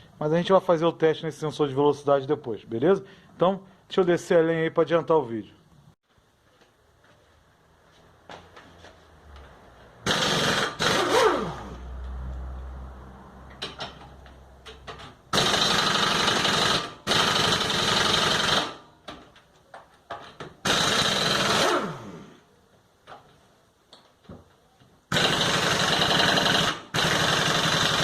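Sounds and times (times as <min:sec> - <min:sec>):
power tool loosening bolts: 0:10.1 - 0:11.8, 0:14.7 - 0:18.8, 0:20.2 - 0:22.3, 0:25.1 - 0:28.0.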